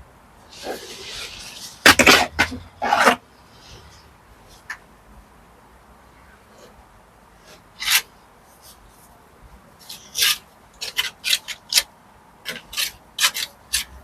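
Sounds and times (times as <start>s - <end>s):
hand scraping against brick: 9.8s - 14.0s.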